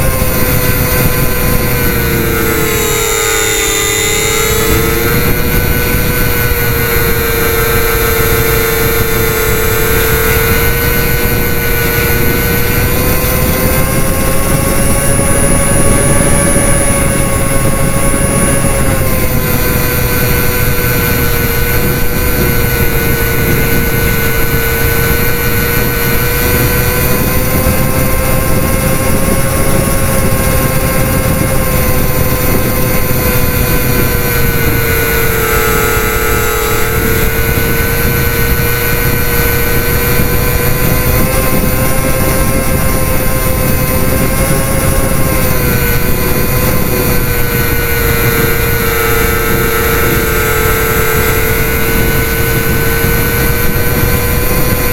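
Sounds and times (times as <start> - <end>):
model plane propellers whining: 0.0 - 54.9.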